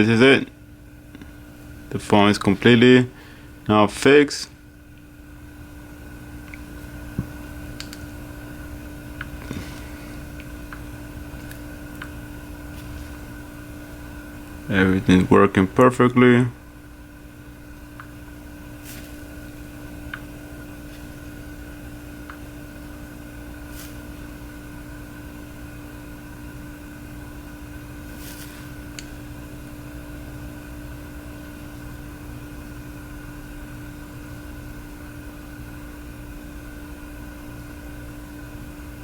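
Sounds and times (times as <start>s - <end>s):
steady machine hum: 0.0s - 39.0s
faint clicks and ticks: 7.8s - 8.1s.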